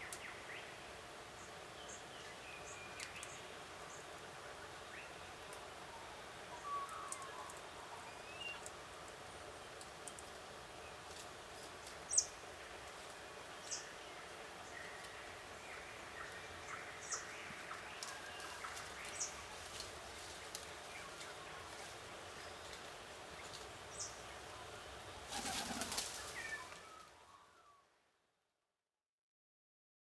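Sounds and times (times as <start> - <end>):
wing flaps: 25.3 - 26.8.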